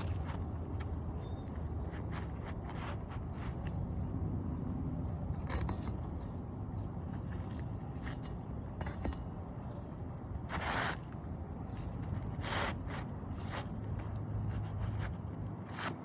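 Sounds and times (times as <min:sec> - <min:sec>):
scrape on shingle roof: 0:00.0 - 0:04.1, 0:09.7 - 0:16.0
tools clinking: 0:05.3 - 0:09.8.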